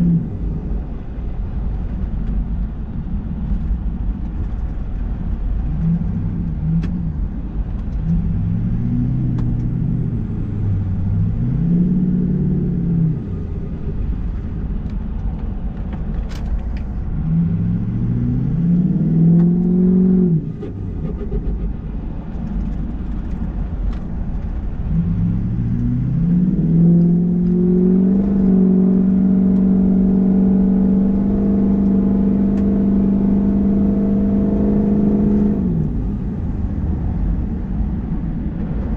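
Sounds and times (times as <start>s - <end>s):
diesel engine revving: 8.0s - 14.2s, 17.1s - 22.0s, 24.7s - 37.5s.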